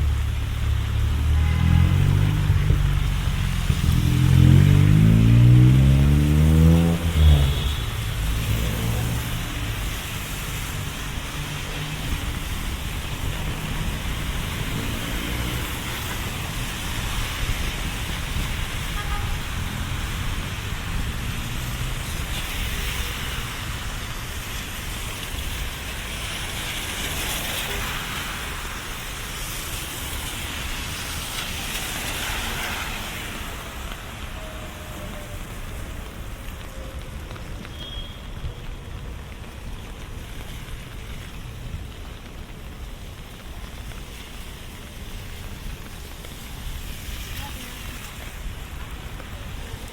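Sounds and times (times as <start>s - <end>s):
rain falling: 0.0s - 49.9s
tyres hissing on wet pavement: 0.0s - 49.9s.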